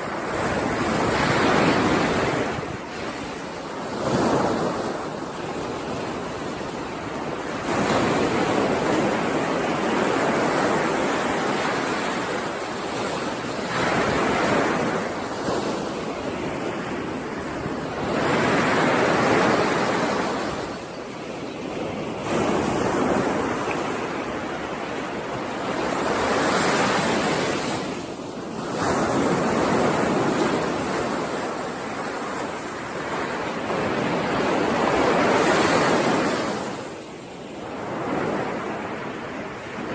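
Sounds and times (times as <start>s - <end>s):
ocean waves breaking on shore: 0.0s - 39.9s
wind: 0.0s - 39.9s.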